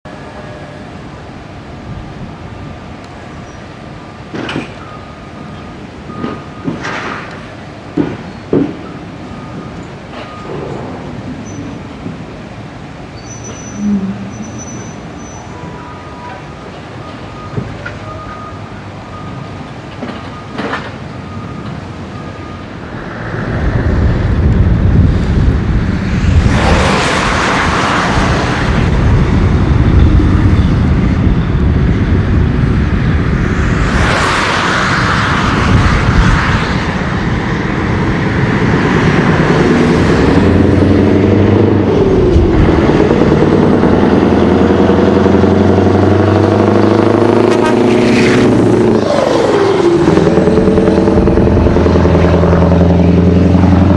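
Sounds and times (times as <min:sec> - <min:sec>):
truck engine running loud: 0:21.3 - 0:53.9.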